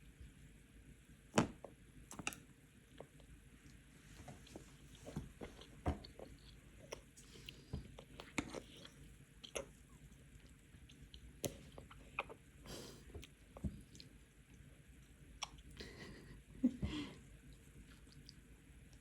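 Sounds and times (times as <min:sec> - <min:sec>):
child chewing: 0:02.1 - 0:14.6, 0:15.2 - 0:16.3, 0:16.9 - 0:19.0
soft breaths: 0:03.9 - 0:09.2.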